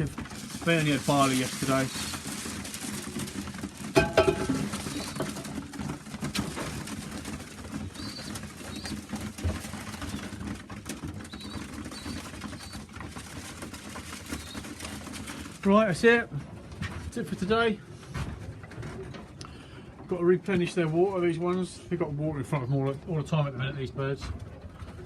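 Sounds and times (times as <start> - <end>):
beaks pecking at feed: 0.0 - 16.2
pigeons cooing: 4.0 - 5.9, 6.8 - 15.5.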